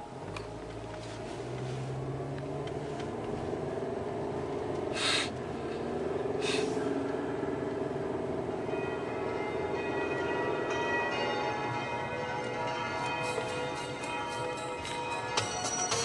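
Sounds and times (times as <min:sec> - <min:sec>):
music from car stereo: 0:00.0 - 0:02.2, 0:12.9 - 0:16.0
road and engine drone: 0:00.0 - 0:16.0.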